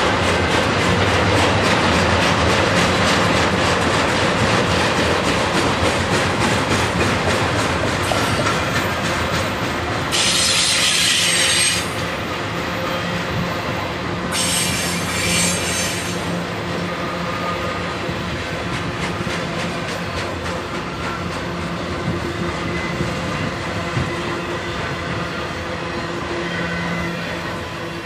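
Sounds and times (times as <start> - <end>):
freight train wheels clicking: 0.0 - 28.0
high-pitched wheel squeal: 10.1 - 12.0, 14.3 - 16.3.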